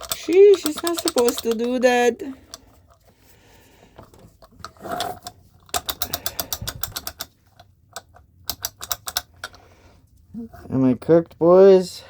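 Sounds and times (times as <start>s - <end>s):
rapid light metallic clicking: 0.0s - 2.9s, 5.2s - 9.6s.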